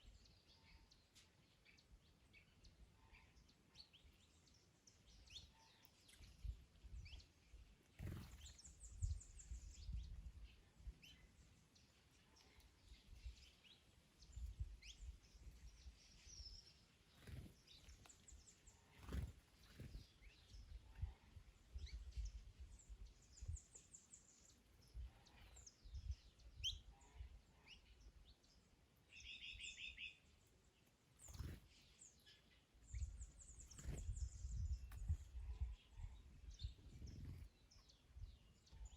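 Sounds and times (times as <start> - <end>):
small birds chirping: 0.0 - 38.9
wind rumbling on microphone: 8.0 - 11.2, 19.0 - 23.8, 24.8 - 26.9, 32.8 - 38.9.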